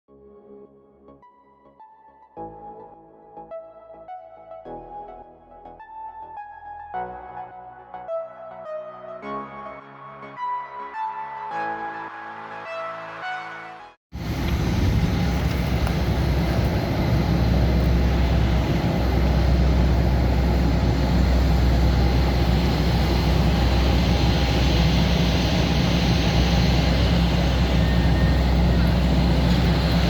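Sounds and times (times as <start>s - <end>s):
jet airliner engine noise: 14.2s - 30.0s.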